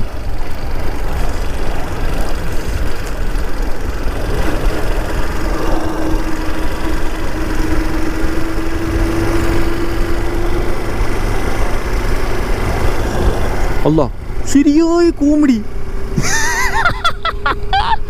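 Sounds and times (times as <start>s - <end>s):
motorcycle engine rumbling: 0.0s - 18.0s
steady hum: 0.0s - 18.0s.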